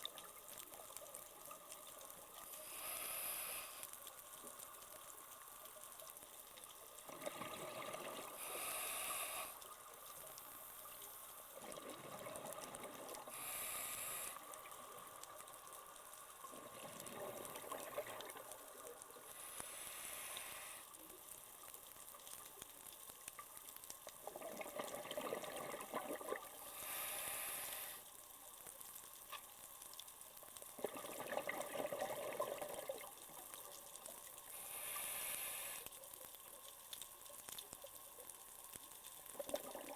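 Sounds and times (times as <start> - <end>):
regulator air hiss: 2.4 - 3.9, 8.4 - 9.6, 13.3 - 14.5, 19.3 - 20.9, 26.7 - 28.1, 34.5 - 35.9
exhaust bubbles gurgling: 7.0 - 8.4, 11.6 - 13.3, 16.5 - 18.4, 24.2 - 26.6, 30.8 - 33.1, 39.4 - 39.9.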